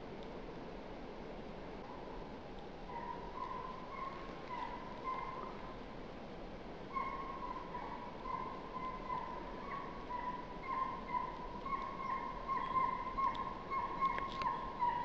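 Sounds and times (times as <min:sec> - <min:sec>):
hound yelping: 0:02.9 - 0:05.5, 0:06.9 - 0:15.0.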